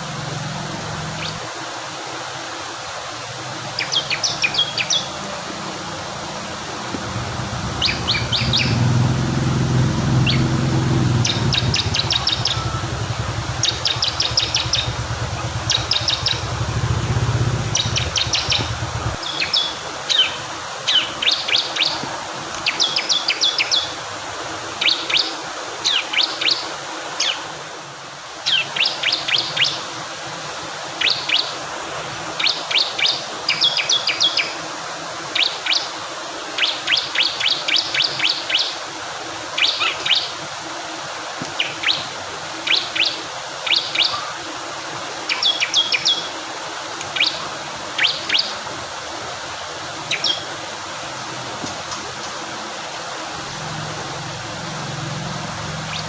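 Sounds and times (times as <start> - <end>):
rushing water: 0.0 - 56.0
low rumble: 7.0 - 19.2
bird singing high clipped notes: 7.3 - 19.8.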